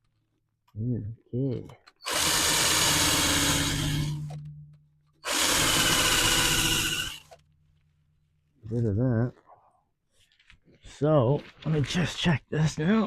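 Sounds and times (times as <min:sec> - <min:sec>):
power tool grinding metal: 0:02.0 - 0:04.5, 0:05.2 - 0:07.4.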